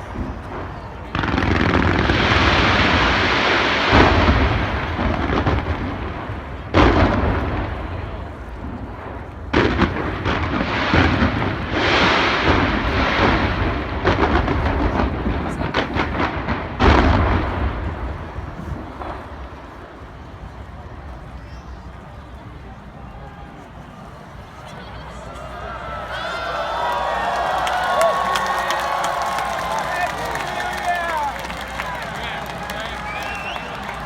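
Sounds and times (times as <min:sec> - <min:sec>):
fireworks booming: 0:00.0 - 0:21.1
fireworks crackling: 0:00.0 - 0:22.6, 0:26.1 - 0:34.0.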